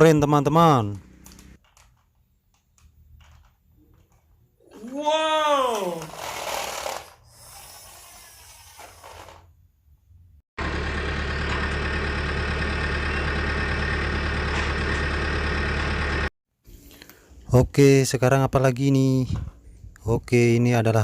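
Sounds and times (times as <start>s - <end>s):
truck engine idling: 10.6s - 16.3s.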